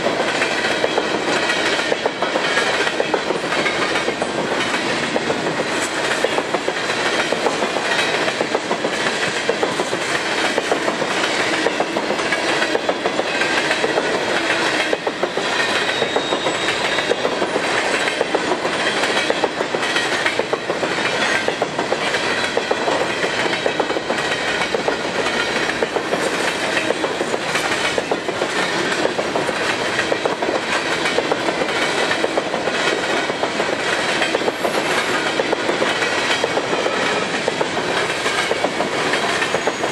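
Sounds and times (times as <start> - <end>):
freight train rolling past: 0.0 - 39.9
wheels clicking over rail joints: 0.0 - 39.9.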